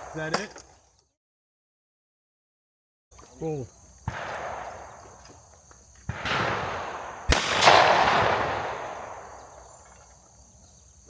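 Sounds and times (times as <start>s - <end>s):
shotgun shots with echo: 4.1s - 5.4s, 6.0s - 9.8s.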